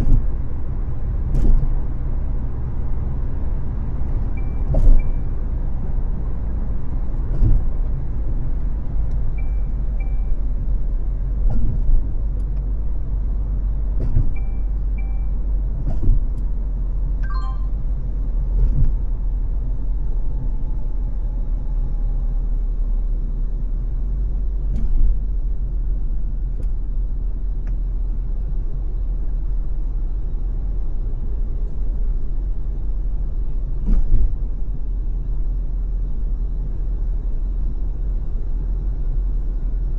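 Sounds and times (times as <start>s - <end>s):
road and engine rumble: 0.0s - 39.9s
dull thump: 11.4s - 12.0s
faint short high beeps: 14.4s - 15.4s, 17.2s - 17.8s.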